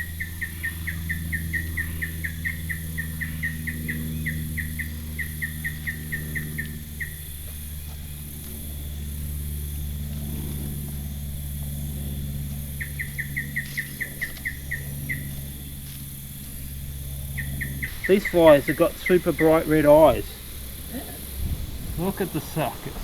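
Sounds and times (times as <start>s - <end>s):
high insect drone: 0.0s - 23.0s
low steady hum: 0.0s - 23.0s
bird chirping: 12.7s - 15.6s, 17.1s - 23.0s.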